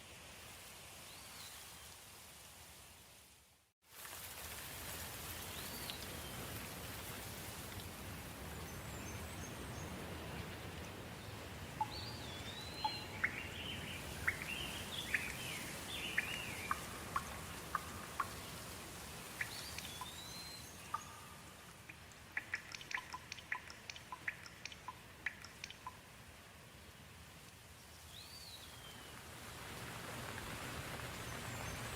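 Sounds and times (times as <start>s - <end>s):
soft steady rain: 0.0s - 31.9s
quick sharp ticks: 21.9s - 26.0s.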